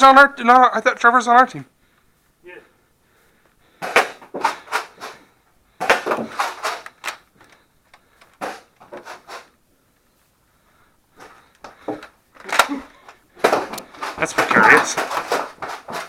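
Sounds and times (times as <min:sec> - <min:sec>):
balls striking surfaces: 0:03.8 - 0:05.2, 0:05.8 - 0:06.9, 0:13.4 - 0:16.0.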